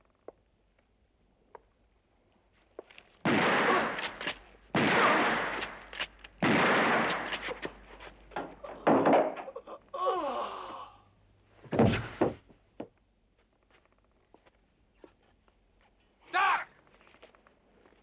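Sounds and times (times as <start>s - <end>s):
shotgun blasts: 3.2s - 7.7s.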